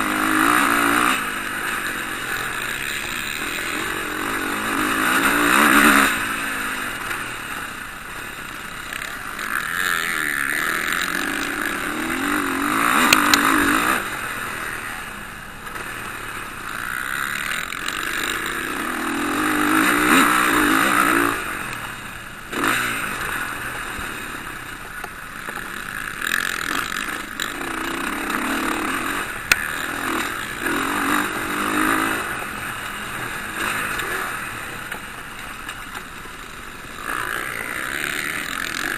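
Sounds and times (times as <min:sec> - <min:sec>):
motocross bikes racing past: 0:00.0 - 0:38.9.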